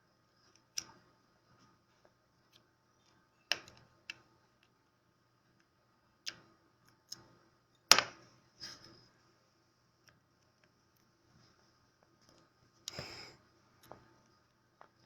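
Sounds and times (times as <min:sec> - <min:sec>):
clicks and taps of small parts: 0:02.5 - 0:04.8, 0:05.6 - 0:08.2.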